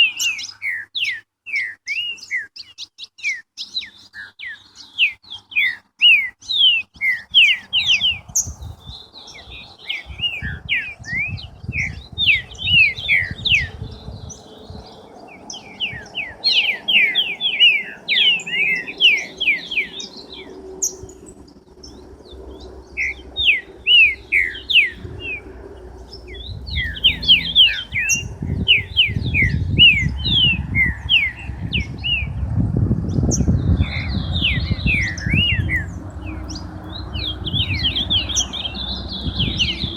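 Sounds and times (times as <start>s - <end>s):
songbirds chirping: 0.0s - 39.9s
low rumbling noise: 7.6s - 17.4s, 18.0s - 39.9s.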